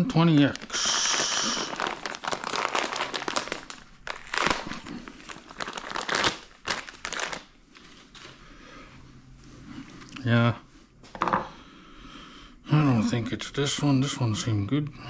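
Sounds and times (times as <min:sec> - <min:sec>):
crinkling rustle: 0:00.3 - 0:08.4.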